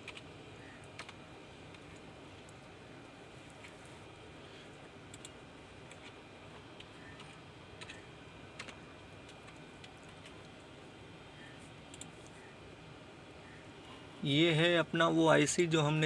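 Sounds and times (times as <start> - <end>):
keyboard and mouse clicks: 0.0 - 0.3, 0.9 - 2.0, 5.1 - 8.0, 8.6 - 10.6, 11.9 - 12.1
low background hiss: 0.0 - 16.0.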